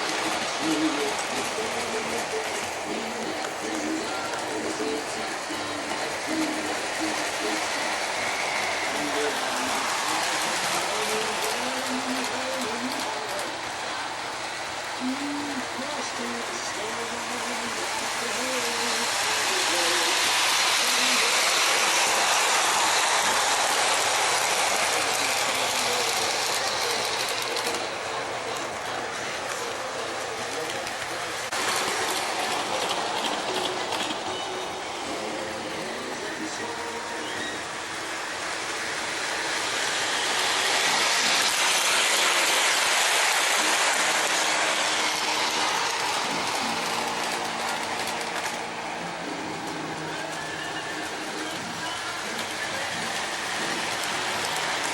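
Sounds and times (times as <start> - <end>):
model train wheel clatter: 0.0 - 13.6, 15.1 - 34.4, 38.5 - 48.8, 49.6 - 54.9.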